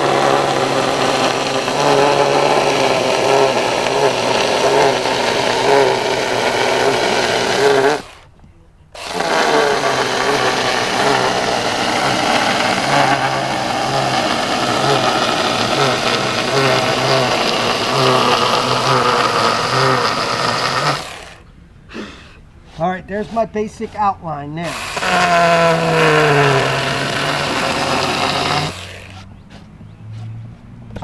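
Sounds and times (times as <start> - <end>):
electric chainsaw cutting wood: 0.0 - 8.4, 9.0 - 21.5, 23.2 - 31.0.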